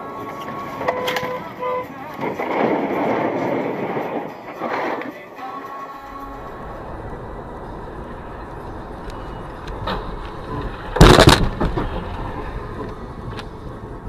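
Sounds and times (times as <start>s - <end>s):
car road noise: 0.0s - 14.0s
loud collision bang: 10.8s - 11.9s.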